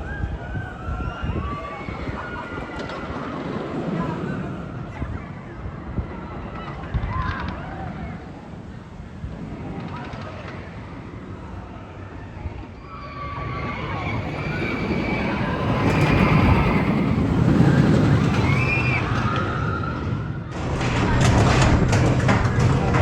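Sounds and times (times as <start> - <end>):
roller coaster rumbling on track: 0.0 - 23.0
riders screaming: 12.0 - 20.5.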